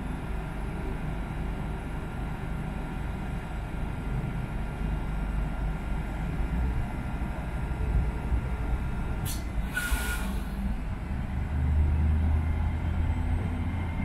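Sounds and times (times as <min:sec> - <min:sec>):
low engine hum: 0:00.0 - 0:14.0
train rumbling: 0:00.0 - 0:14.0
brake air hiss and squeal: 0:09.2 - 0:10.6.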